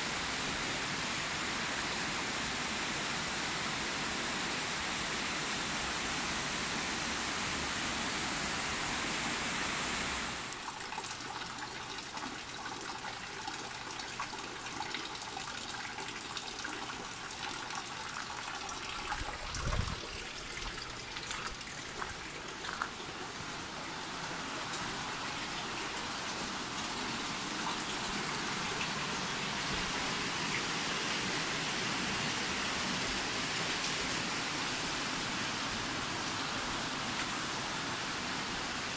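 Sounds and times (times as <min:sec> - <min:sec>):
waterfall and stream rushing: 0:00.0 - 0:10.6, 0:19.3 - 0:38.9.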